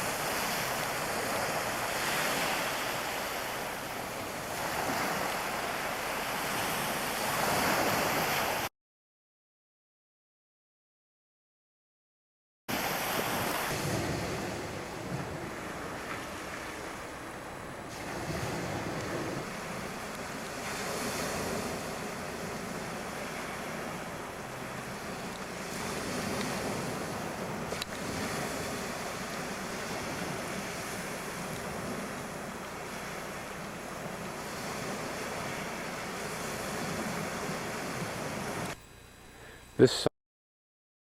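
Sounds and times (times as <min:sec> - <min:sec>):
rushing water: 0:00.0 - 0:08.7, 0:12.7 - 0:38.8
wind: 0:00.0 - 0:08.7, 0:12.7 - 0:40.1.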